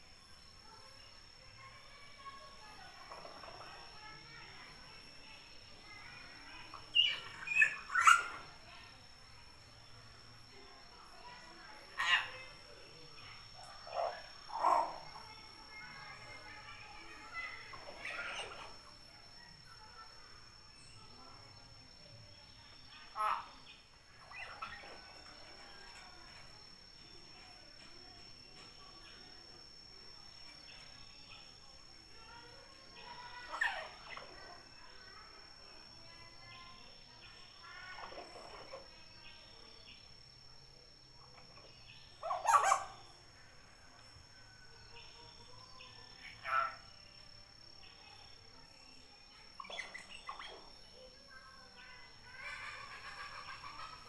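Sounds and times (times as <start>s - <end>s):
bird chattering: 6.7s - 8.6s, 42.2s - 43.1s
myna bird calling: 6.8s - 8.6s, 23.0s - 26.1s, 41.6s - 43.2s.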